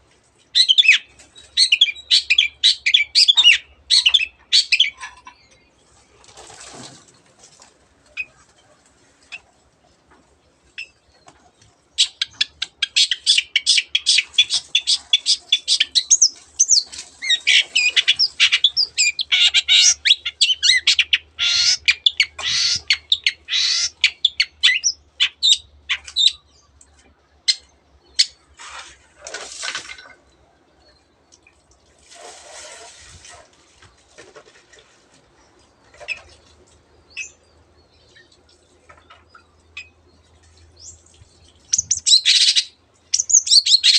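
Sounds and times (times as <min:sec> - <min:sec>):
rustle: 0:00.0 - 0:24.0, 0:26.0 - 0:43.9
bird chattering song: 0:12.0 - 0:26.7, 0:35.9 - 0:43.9.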